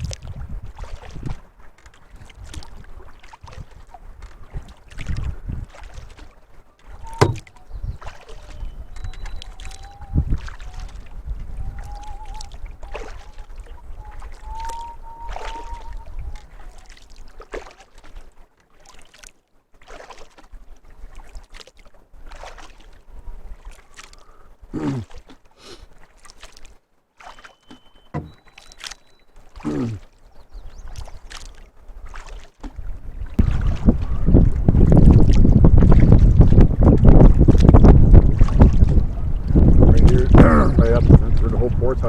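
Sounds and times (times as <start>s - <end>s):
paddle splashing in water: 0.0s - 42.0s
hollow plunks: 7.0s - 7.6s, 27.7s - 28.7s.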